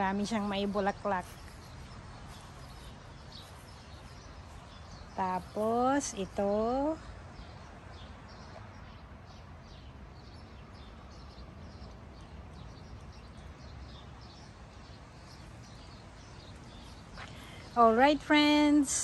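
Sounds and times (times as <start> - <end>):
small bird chirping: 0.0 - 6.4.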